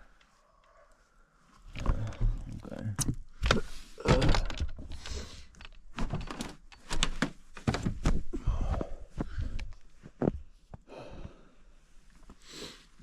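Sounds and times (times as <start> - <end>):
knocks and thunks: 6.0 - 8.3.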